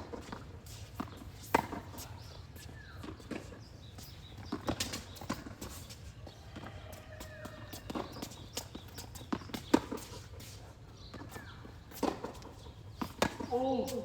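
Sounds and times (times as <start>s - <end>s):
racket hitting tennis ball: 13.0s - 14.0s.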